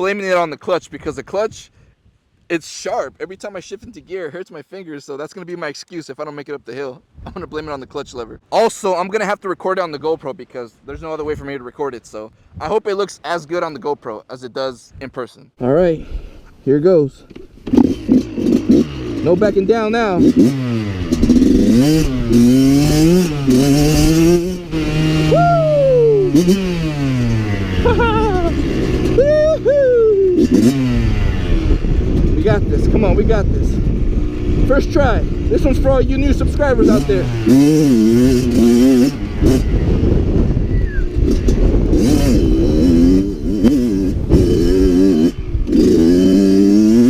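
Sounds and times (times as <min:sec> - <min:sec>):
low wind rumble: 0:07.0 - 0:08.7, 0:20.9 - 0:47.0
dirt bike engine revving hard: 0:17.7 - 0:29.6, 0:30.2 - 0:32.3, 0:33.8 - 0:47.0
falling whoop-like tone: 0:25.3 - 0:26.4, 0:29.2 - 0:30.4.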